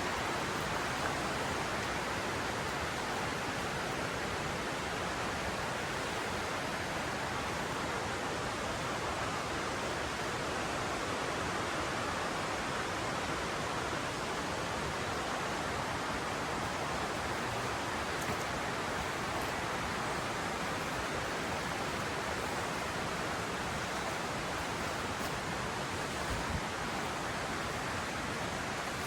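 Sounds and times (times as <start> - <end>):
river flowing: 0.0 - 29.0.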